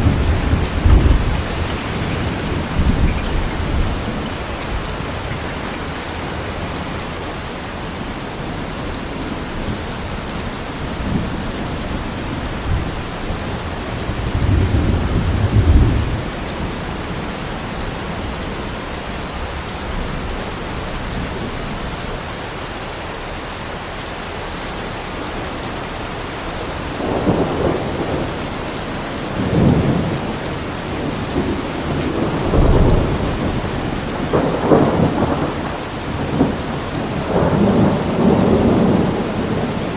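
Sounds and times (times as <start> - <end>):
thunder rumbling: 0.0 - 8.0, 9.5 - 17.2, 26.9 - 39.9
steady rain falling: 0.0 - 39.9.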